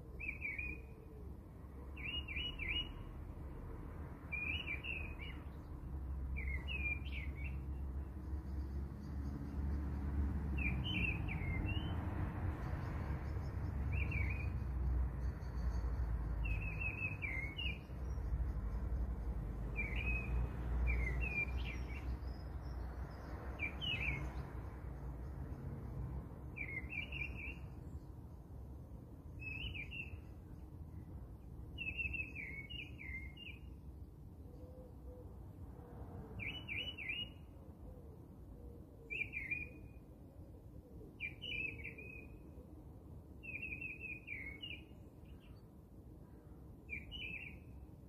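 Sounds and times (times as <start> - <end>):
bird chirping: 0.1 - 1.0, 1.9 - 3.2, 4.3 - 9.8, 10.5 - 12.0, 12.6 - 25.7, 26.5 - 28.4, 29.3 - 33.8, 36.4 - 37.6, 39.1 - 40.0, 41.2 - 42.6, 43.4 - 45.7, 46.9 - 47.8.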